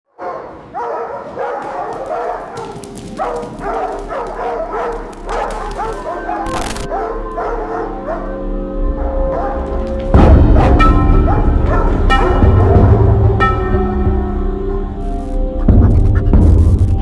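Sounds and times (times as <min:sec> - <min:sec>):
dogs barking and yelping: 0:00.2 - 0:13.7.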